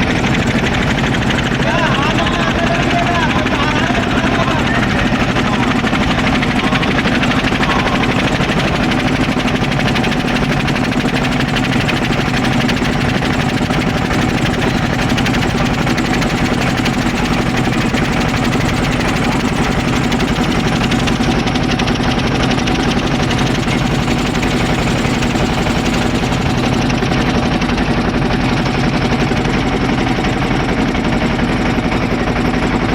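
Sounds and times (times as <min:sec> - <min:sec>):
boat engine chugging: 0:00.0 - 0:32.9.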